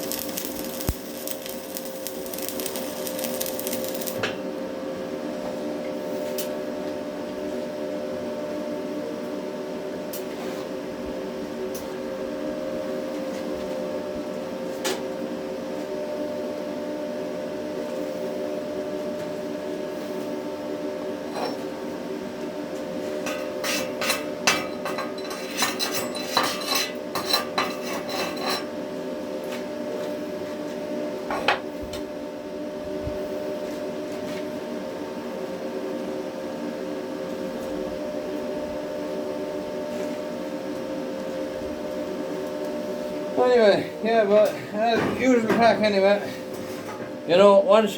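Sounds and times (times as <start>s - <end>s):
welding machine humming: 0.0s - 4.4s.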